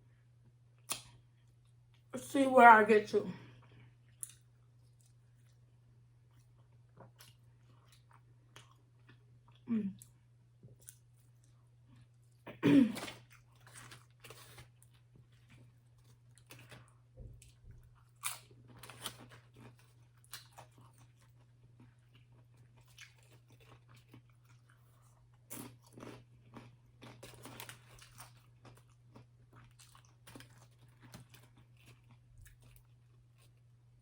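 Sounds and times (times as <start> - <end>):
person crunching chips: 22.0 - 33.6.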